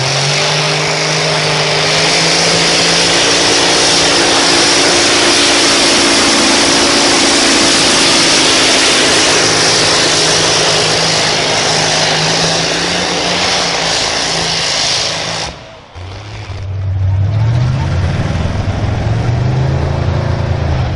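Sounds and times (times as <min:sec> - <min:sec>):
loud engine with high hiss: 0:00.0 - 0:20.9.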